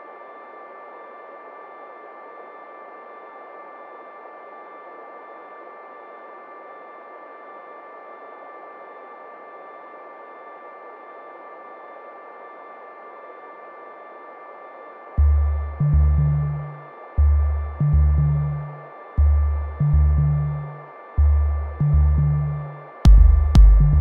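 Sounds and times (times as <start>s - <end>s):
ambient electronic drone: 15.2s - 24.0s.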